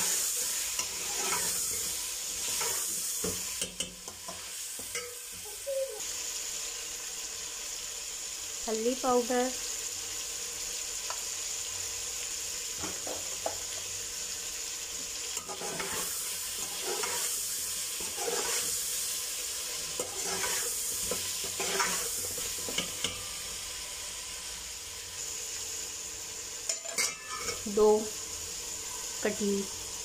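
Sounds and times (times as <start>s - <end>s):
chicken sizzling in oil: 0.0s - 30.0s
metal spoon scraping pot: 0.8s - 2.9s, 15.4s - 17.4s, 18.0s - 18.7s, 20.0s - 23.2s.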